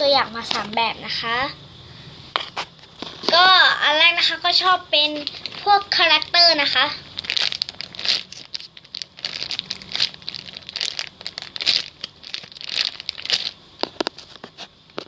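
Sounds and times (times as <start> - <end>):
plastic packaging crinkling: 5.1 - 15.0.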